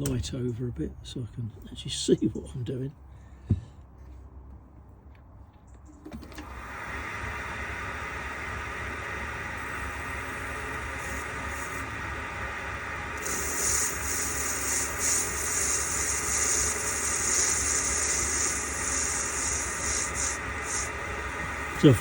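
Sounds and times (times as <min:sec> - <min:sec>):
metal lathe humming: 0:06.4 - 0:22.0
tool cutting metal hissing: 0:09.5 - 0:22.0.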